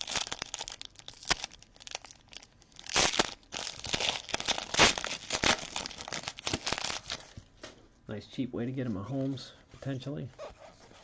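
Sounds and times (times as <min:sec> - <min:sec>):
foil wrappers crinkling and tearing: 0:00.0 - 0:07.4.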